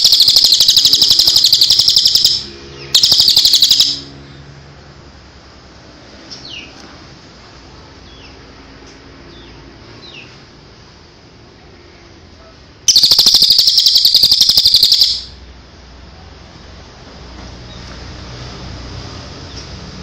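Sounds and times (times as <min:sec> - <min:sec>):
songbird chirps and trill: 0:00.0 - 0:04.1, 0:12.9 - 0:15.4.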